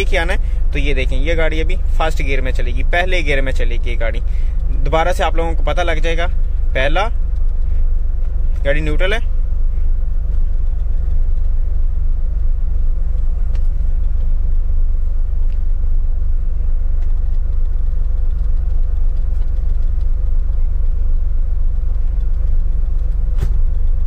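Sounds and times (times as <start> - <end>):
car engine running low revs: 0.0 - 24.0
faint clicks: 6.5 - 8.7.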